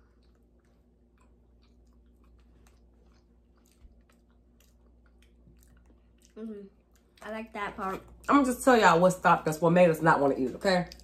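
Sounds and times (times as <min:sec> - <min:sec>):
person chewing: 0:00.0 - 0:08.3.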